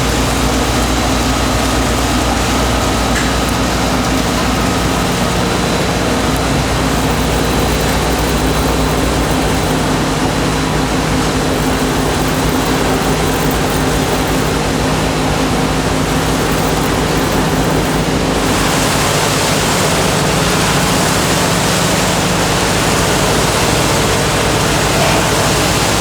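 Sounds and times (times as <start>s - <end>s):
factory machinery running: 0.0s - 26.0s.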